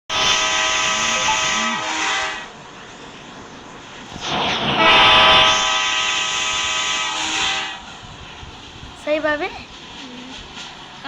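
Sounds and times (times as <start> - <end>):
train horn blast: 0.1 - 2.6, 4.6 - 8.0
short rushing noise: 4.1 - 9.0.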